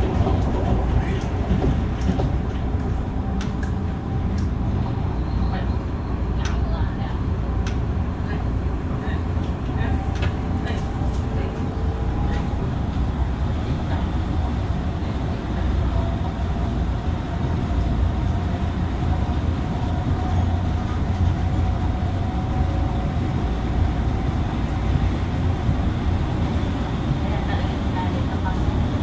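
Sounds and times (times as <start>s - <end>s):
train wheels rumbling on track: 0.0s - 29.0s.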